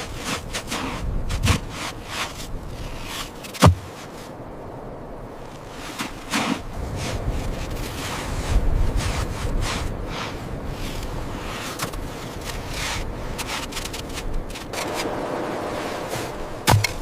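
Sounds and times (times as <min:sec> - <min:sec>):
wind blowing: 0:00.0 - 0:17.0
scraping and rubbing: 0:11.5 - 0:17.0
sharp knock: 0:16.6 - 0:17.0.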